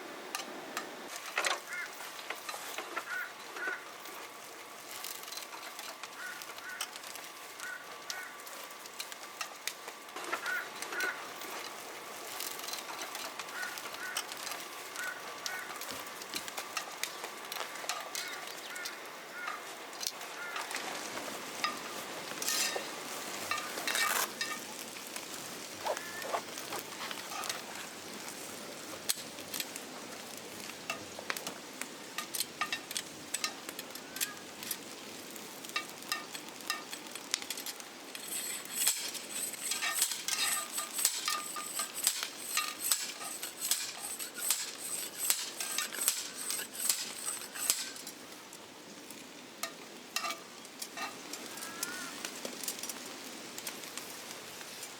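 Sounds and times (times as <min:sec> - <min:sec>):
food sizzling in a pan: 0:20.4 - 0:31.2, 0:38.0 - 0:48.2
utensils clinking: 0:38.2 - 0:48.0.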